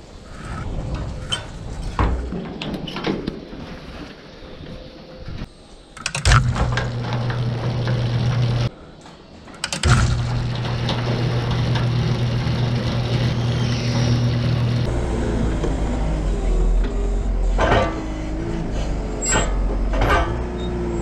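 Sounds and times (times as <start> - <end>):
garage door opener motor humming: 6.0 - 8.7, 9.6 - 21.0
motor starting click: 6.0 - 8.7, 9.6 - 14.9.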